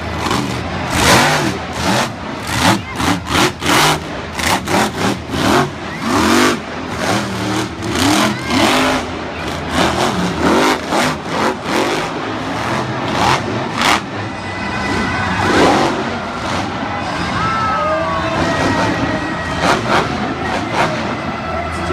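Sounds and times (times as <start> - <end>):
monster truck engine revving: 0.0 - 21.9.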